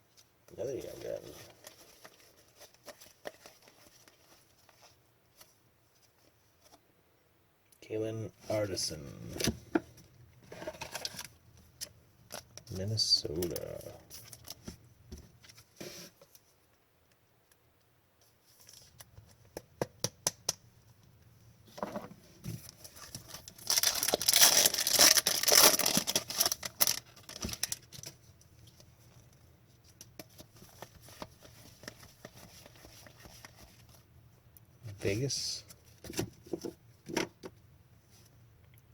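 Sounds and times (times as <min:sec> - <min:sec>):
foil wrapper tearing and crinkling: 0:23.0 - 0:28.1.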